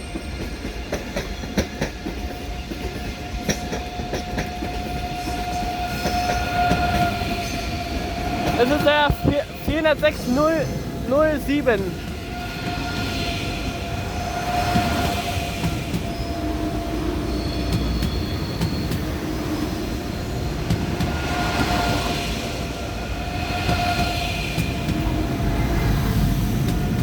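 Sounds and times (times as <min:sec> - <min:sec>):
train rumbling slowly: 0:00.0 - 0:27.0
wheels clicking over rail joints: 0:00.1 - 0:10.0.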